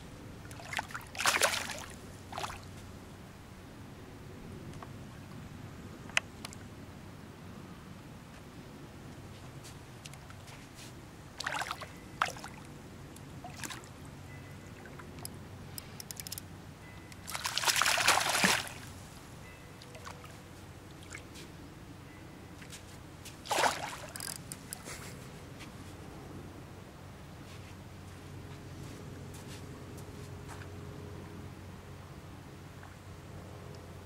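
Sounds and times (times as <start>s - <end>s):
water splashing and sloshing: 0.4s - 2.9s, 10.0s - 12.7s, 13.4s - 14.0s, 17.2s - 19.2s, 19.8s - 21.5s, 22.6s - 25.2s.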